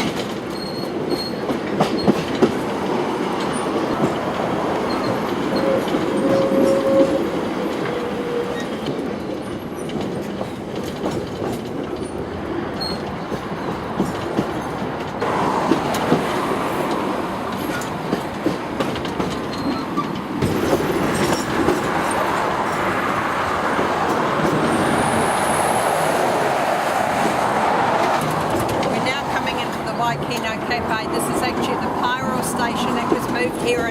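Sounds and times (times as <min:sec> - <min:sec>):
wheels clicking over rail joints: 0:00.0 - 0:25.0, 0:27.2 - 0:33.9
railway carriage rumbling: 0:00.0 - 0:33.9
high-pitched squeal: 0:04.8 - 0:08.8, 0:21.3 - 0:28.4.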